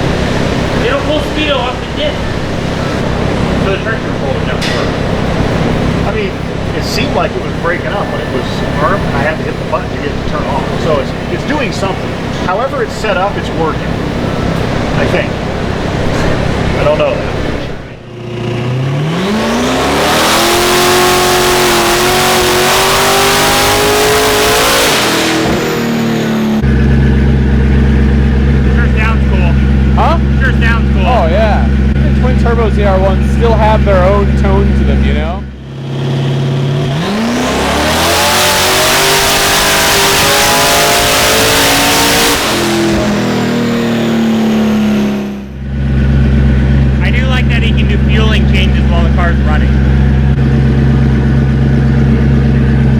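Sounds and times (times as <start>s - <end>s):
low steady drone: 0.0s - 18.1s
engine revving at full throttle: 0.0s - 52.9s.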